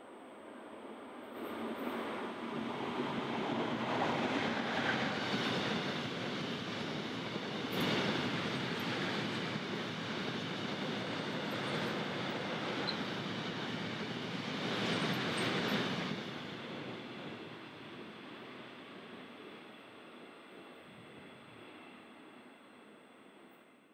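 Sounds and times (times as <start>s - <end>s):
freight train rattling past: 2.0s - 17.5s.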